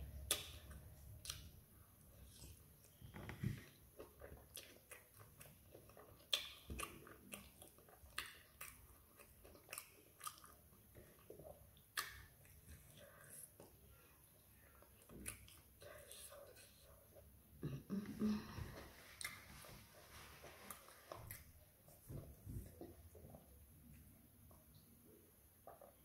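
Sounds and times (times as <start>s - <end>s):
person chewing: 0.1s - 1.6s, 2.2s - 17.3s, 18.2s - 24.9s
sharp mouth clicks and smacks: 0.2s - 1.6s, 4.4s - 10.5s, 11.8s - 12.6s.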